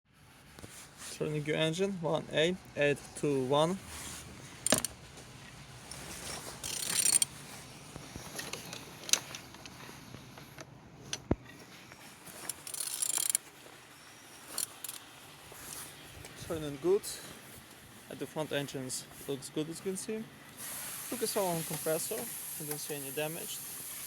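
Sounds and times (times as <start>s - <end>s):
engine rasping when turned by hand: 3.0s - 13.8s, 14.4s - 16.0s
wrench ratchet clicks: 4.6s - 4.9s, 6.6s - 7.3s, 12.4s - 13.4s, 14.5s - 15.0s.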